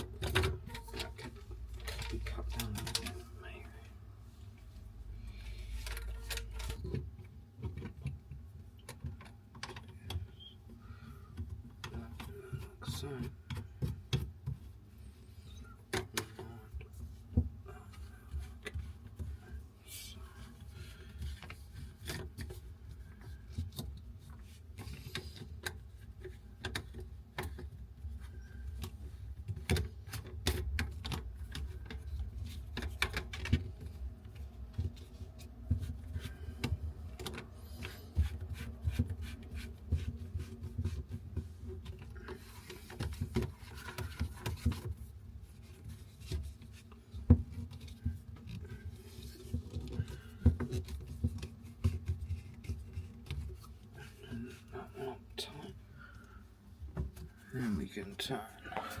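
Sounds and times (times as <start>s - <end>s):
plastic pipe fittings clicking: 20.5s - 45.0s.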